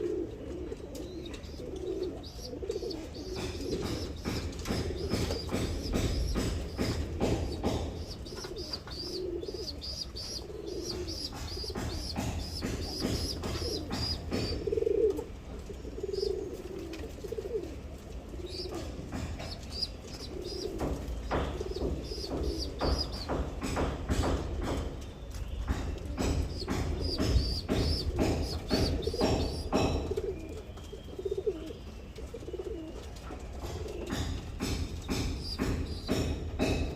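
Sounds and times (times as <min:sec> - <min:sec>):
pigeons cooing: 0:00.0 - 0:25.0, 0:25.7 - 0:36.9
light clicks and knocks: 0:00.9 - 0:14.8
high chirping calls: 0:01.2 - 0:14.6, 0:18.5 - 0:23.9, 0:25.3 - 0:30.1, 0:34.9 - 0:36.7.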